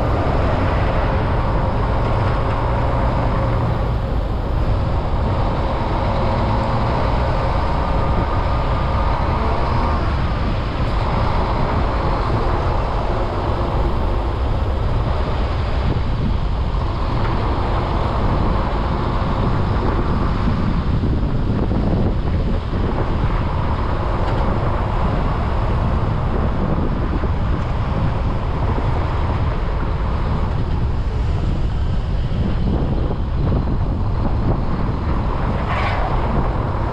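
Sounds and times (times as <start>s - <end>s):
road traffic rumble: 0.0s - 36.9s.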